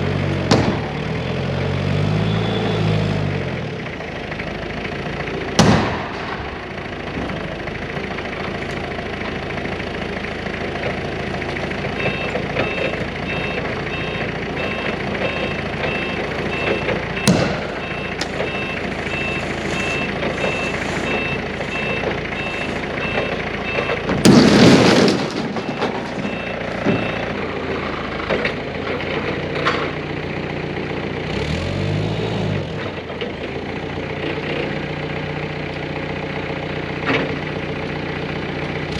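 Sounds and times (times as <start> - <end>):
heavy equipment engine running: 0.0 - 38.9
loud crunching crash: 0.4 - 1.1, 5.6 - 7.4, 17.2 - 21.9, 24.0 - 27.2
reversing alarm beeping: 2.1 - 3.1, 11.9 - 24.2, 25.6 - 27.5.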